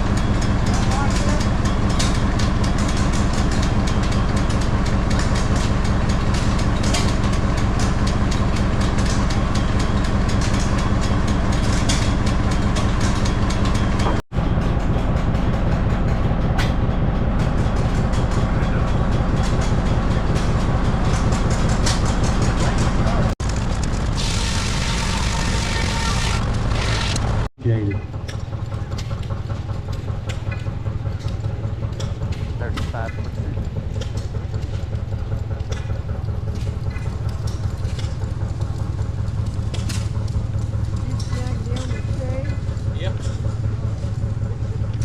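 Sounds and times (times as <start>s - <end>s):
engine running: 0.0s - 45.0s.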